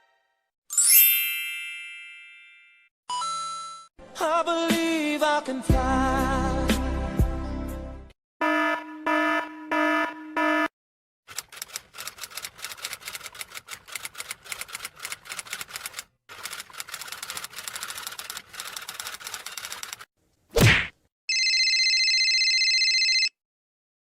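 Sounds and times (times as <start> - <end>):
rapid typing clicks: 11.3 - 20.1.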